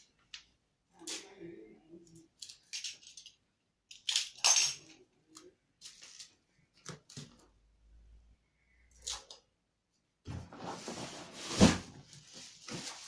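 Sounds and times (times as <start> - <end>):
packing material rustling: 10.6 - 13.0.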